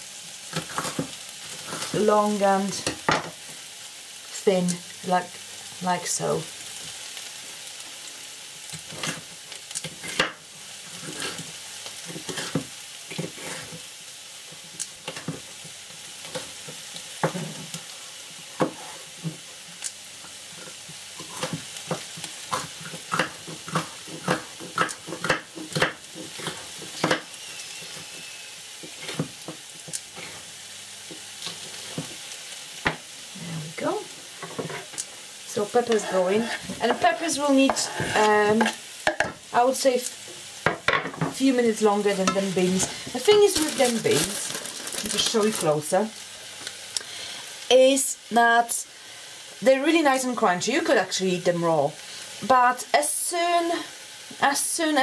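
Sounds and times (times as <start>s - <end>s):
vegetables sizzling in a frying pan: 0.0s - 55.0s
knocks and clicks of kitchen work: 2.8s - 3.4s, 14.8s - 15.5s, 18.6s - 19.4s, 20.6s - 27.3s, 28.8s - 30.2s, 32.8s - 33.1s, 37.6s - 39.4s, 40.6s - 41.4s.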